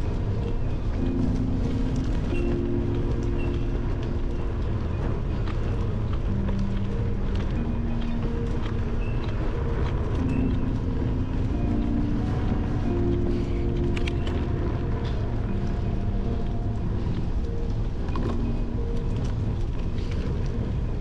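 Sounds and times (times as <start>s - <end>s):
bicycle tyres rumbling on gravel: 0.0s - 21.0s
wind: 0.0s - 21.0s.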